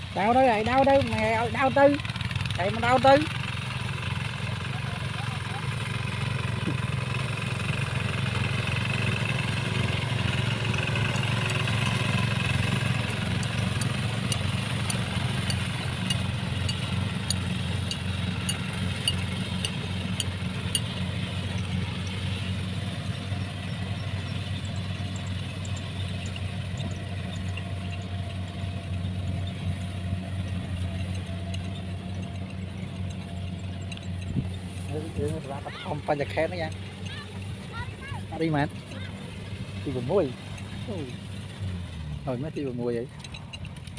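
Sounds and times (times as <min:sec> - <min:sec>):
combine harvester engine hum: 0:00.0 - 0:43.9
faint rapid ticking: 0:07.6 - 0:22.2, 0:23.2 - 0:41.6.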